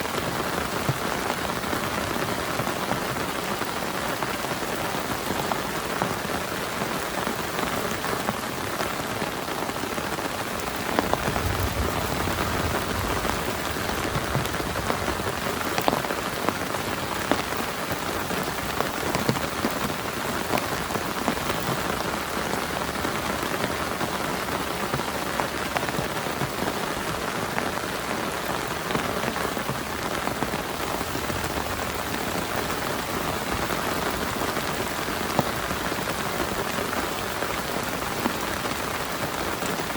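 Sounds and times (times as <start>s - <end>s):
heavy rain on a tarp: 0.0s - 39.9s
low rumble: 10.9s - 15.8s.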